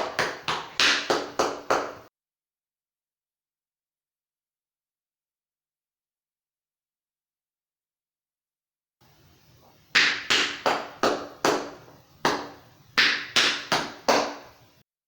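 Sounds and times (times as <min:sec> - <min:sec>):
tap shoes on hard floor: 0:00.0 - 0:02.1, 0:10.0 - 0:14.6.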